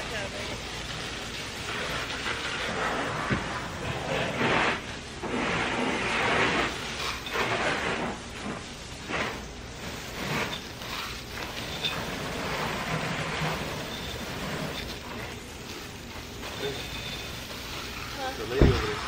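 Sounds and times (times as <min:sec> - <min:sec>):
hose spray hitting car: 0:00.0 - 0:19.0.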